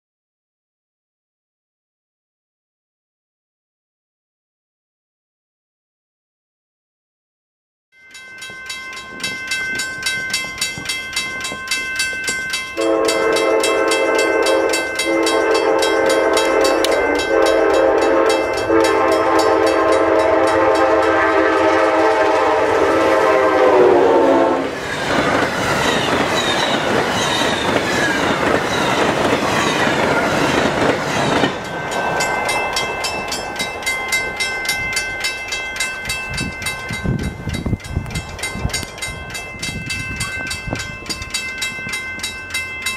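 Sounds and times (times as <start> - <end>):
crossing bell ringing: 8.0 - 42.9
train roaring past: 9.0 - 42.9
train horn blasts: 12.8 - 24.8.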